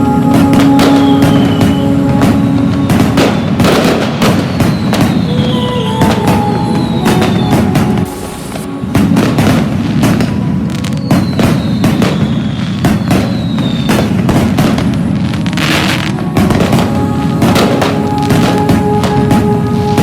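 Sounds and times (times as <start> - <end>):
high falling whistle: 0.0 - 14.4
fireworks bangs: 0.0 - 20.0.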